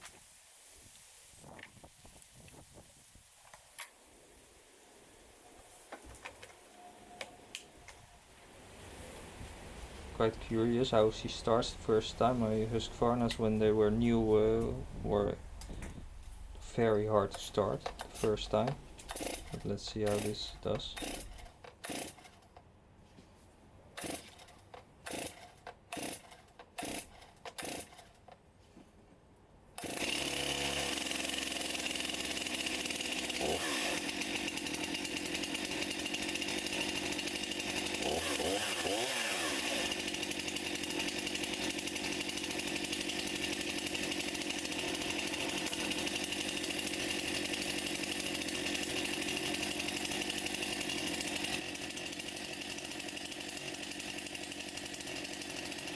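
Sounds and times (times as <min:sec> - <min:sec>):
chainsaw engine running: 0:10.2 - 0:22.4, 0:24.0 - 0:28.0, 0:29.8 - 0:55.9
chainsaw starter cord pulls: 0:10.4 - 0:22.7, 0:24.0 - 0:28.4, 0:29.8 - 0:55.9.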